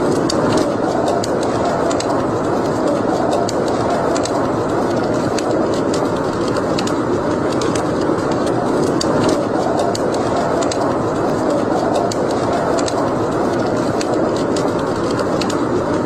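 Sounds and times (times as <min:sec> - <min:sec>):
fire crackling and popping: 0:00.0 - 0:16.0
rush of flames: 0:00.0 - 0:16.0.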